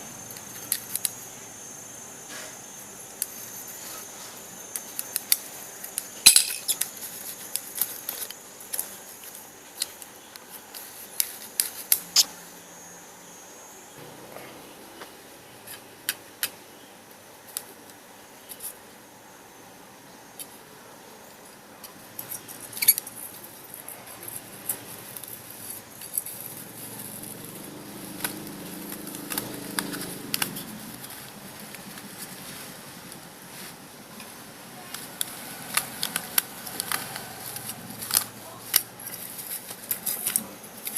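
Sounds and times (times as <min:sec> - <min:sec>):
faint low hum: 0:00.0 - 0:40.9
small hard parts clicking: 0:04.7 - 0:12.0, 0:34.9 - 0:40.9.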